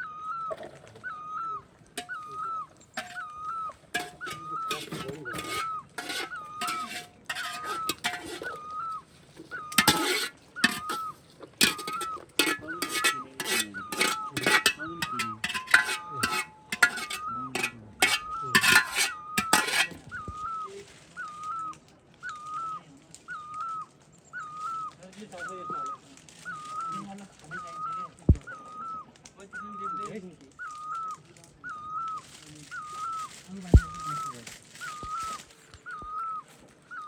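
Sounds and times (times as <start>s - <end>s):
metal dishes clattering: 2.0s - 2.3s, 2.9s - 8.6s, 9.7s - 20.1s.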